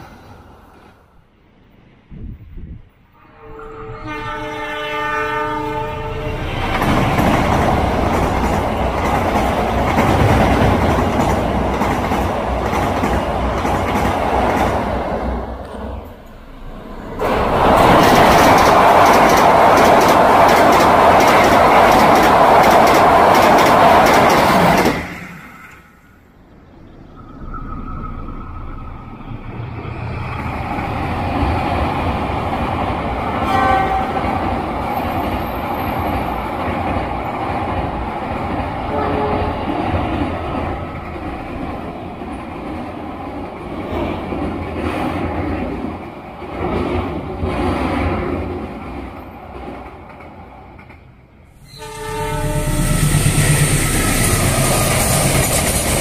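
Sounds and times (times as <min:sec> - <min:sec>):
rumble and clatter of passing train: 0:00.0 - 0:56.0
train rolling across steel bridge: 0:00.0 - 0:56.0
train horn: 0:03.2 - 0:06.8, 0:33.4 - 0:34.4, 0:38.9 - 0:39.7, 0:51.6 - 0:54.3.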